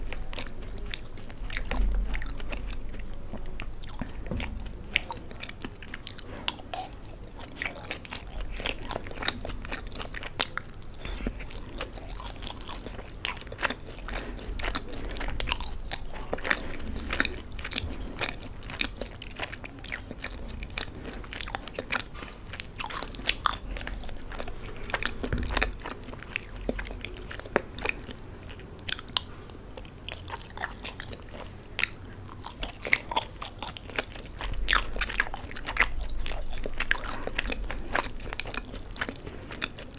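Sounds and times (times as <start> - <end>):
person chewing pasta: 0.0 - 39.9.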